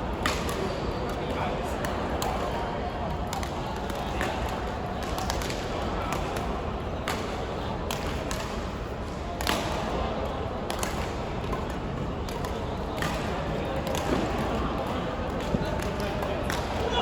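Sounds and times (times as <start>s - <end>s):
sports hall hum: 0.0s - 17.0s
rackets hitting shuttlecock: 0.1s - 1.2s, 9.4s - 10.0s, 10.6s - 16.9s.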